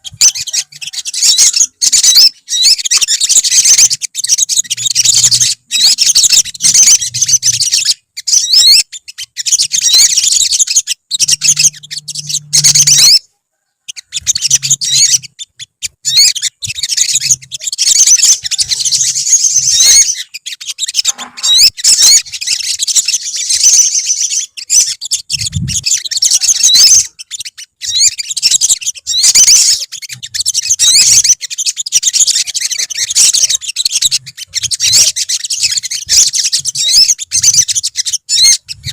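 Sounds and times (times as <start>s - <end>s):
sunbirds twittering trills: 0.0s - 38.9s.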